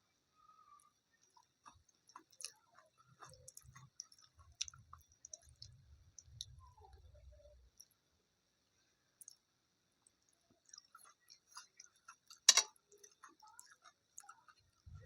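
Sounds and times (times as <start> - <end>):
chewing with wet mouth clicks: 1.2 - 6.6, 9.2 - 9.4, 10.0 - 14.8.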